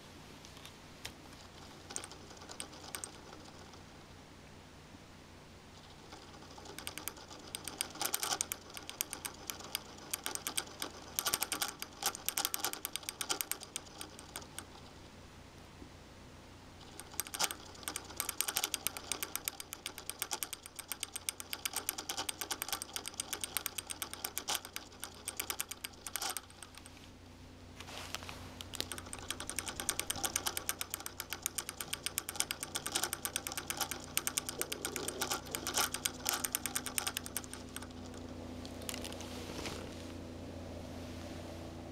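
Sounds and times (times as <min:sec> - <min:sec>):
laptop fan clicking rattle: 0:01.0 - 0:04.0, 0:05.7 - 0:15.0, 0:16.8 - 0:27.1, 0:28.6 - 0:39.2
low hum: 0:25.6 - 0:41.9.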